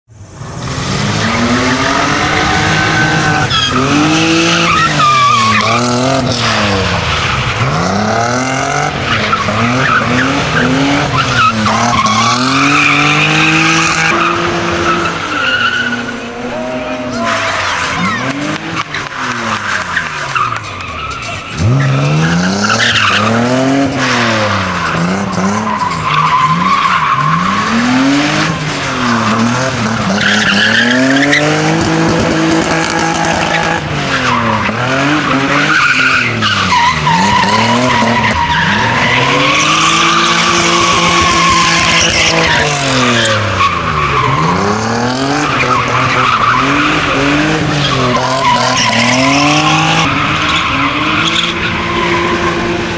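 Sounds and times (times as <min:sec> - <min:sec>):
car engine revving: 0:00.2 - 0:52.9
tyres squealing: 0:01.2 - 0:05.8.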